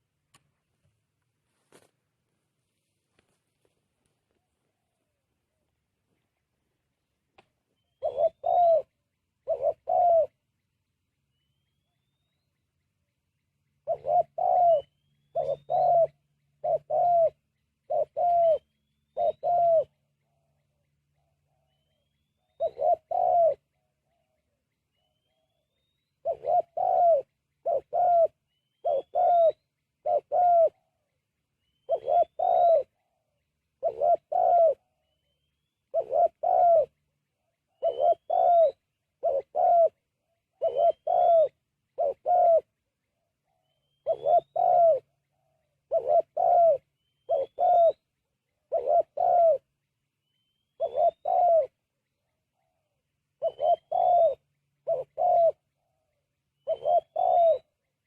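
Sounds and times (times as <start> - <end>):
dove cooing: 7.8 - 10.4, 13.8 - 21.8, 22.4 - 24.2, 26.2 - 31.0, 31.8 - 35.0, 35.9 - 37.0, 37.7 - 42.7, 43.5 - 49.7, 50.8 - 51.8, 52.6 - 57.7.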